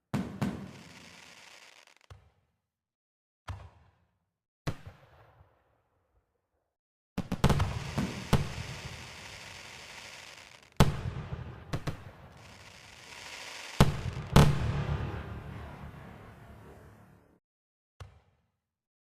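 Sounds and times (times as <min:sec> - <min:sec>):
fireworks bangs: 0:00.1 - 0:02.2, 0:07.2 - 0:17.2
fireworks crackling: 0:00.2 - 0:02.1, 0:07.3 - 0:16.5.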